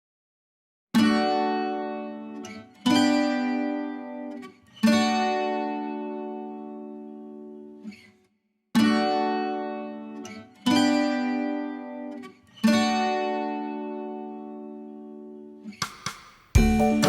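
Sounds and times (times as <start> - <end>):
acoustic guitar strums: 1.0 - 8.2, 8.8 - 17.0.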